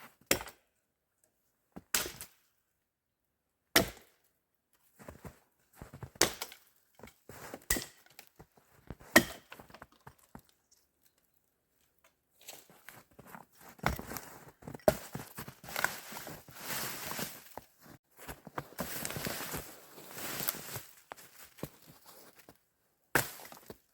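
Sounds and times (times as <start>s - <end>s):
axe chopping wood: 0.3s - 0.6s, 3.8s - 4.2s, 6.2s - 6.6s, 7.6s - 8.1s, 9.1s - 9.6s, 23.1s - 23.7s
crunching and rustling: 12.4s - 22.5s.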